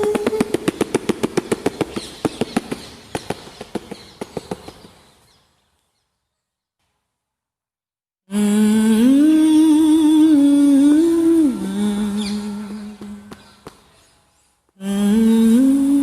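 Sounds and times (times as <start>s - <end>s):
rapid sharp percussive clicks: 0.0s - 4.9s.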